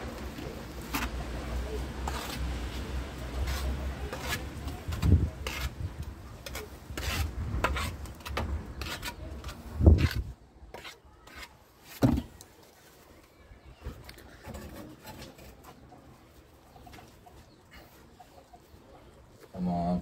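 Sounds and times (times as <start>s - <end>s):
scraping and knocking: 14.2s - 15.9s.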